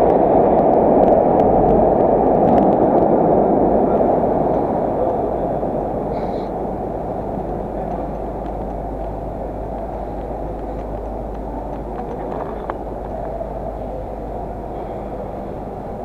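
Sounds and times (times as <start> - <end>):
low rumble of city traffic: 0.0 - 16.0
faint clicks: 7.4 - 13.6.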